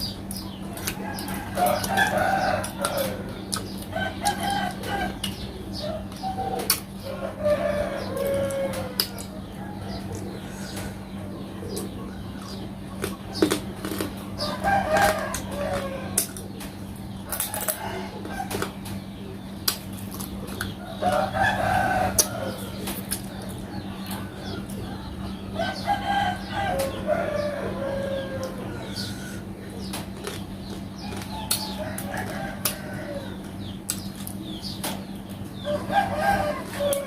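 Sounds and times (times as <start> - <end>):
steady low hum: 0.0 - 37.0
rooster crowing: 0.9 - 5.2, 7.0 - 10.6, 14.4 - 16.2, 20.9 - 22.8, 23.7 - 29.4, 31.4 - 33.4, 35.6 - 37.0.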